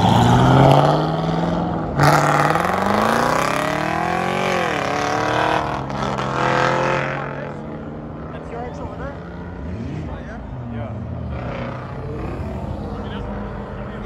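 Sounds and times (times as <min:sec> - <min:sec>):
car engines revving: 0:00.0 - 0:14.0.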